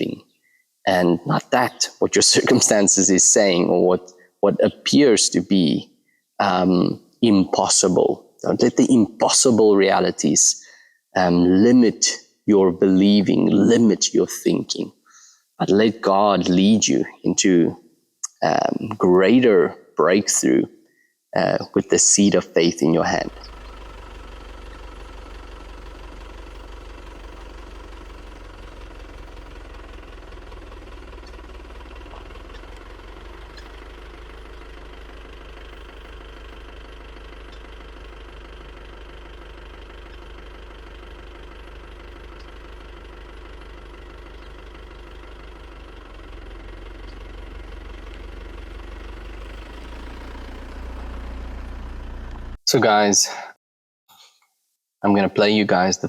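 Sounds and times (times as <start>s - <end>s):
vehicle engine idling: 0.0s - 19.7s, 21.4s - 52.6s.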